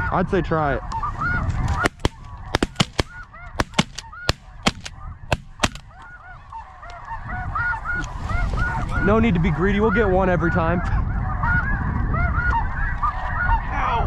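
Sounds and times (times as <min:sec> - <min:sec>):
snow geese honking: 0:00.9 - 0:09.0
shotgun shots: 0:01.8 - 0:05.9.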